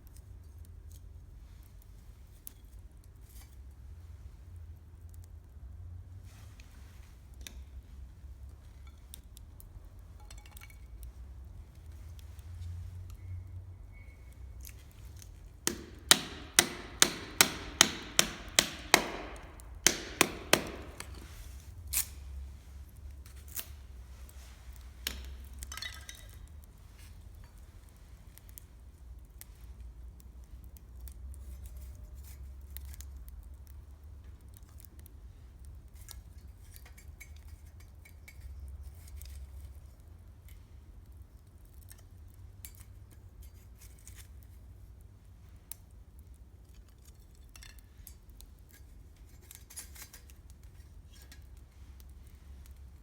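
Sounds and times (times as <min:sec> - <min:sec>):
campfire crackling: 0:14.1 - 0:31.4
sharp knocks: 0:15.7 - 0:21.2.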